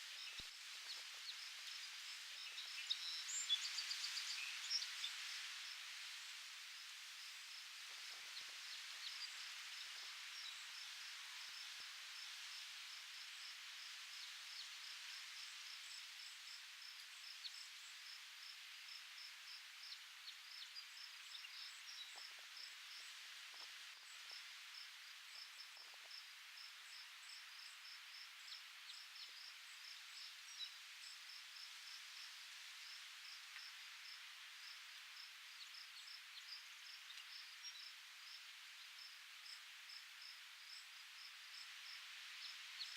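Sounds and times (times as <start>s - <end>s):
wind rustling foliage: 0.0s - 42.9s
insect chirping: 8.7s - 42.9s.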